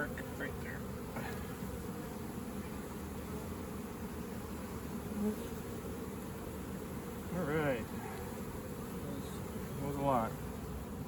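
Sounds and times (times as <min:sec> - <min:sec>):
bee buzzing close by: 0:00.0 - 0:11.0
honeybees buzzing: 0:00.0 - 0:11.0.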